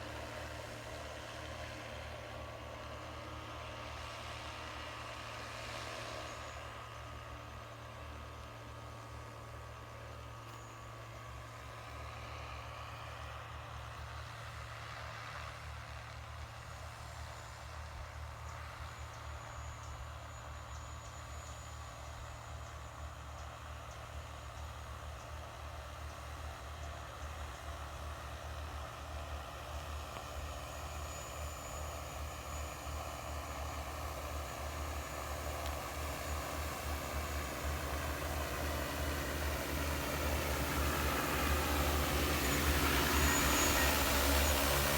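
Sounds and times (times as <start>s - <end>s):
drone rotors buzzing: 30.5s - 44.9s.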